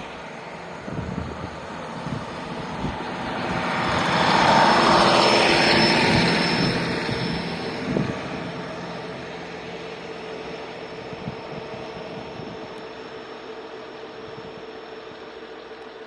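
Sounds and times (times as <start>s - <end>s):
diesel railcar engine: 0.0s - 16.0s.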